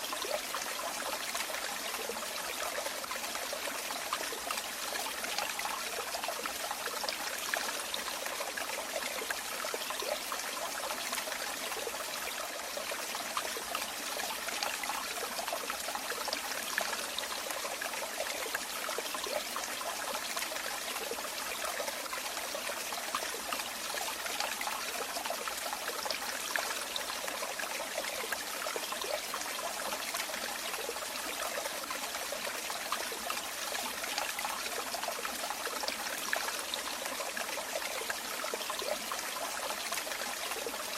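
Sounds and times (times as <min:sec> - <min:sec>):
water trickling and splashing: 0:00.0 - 0:40.9.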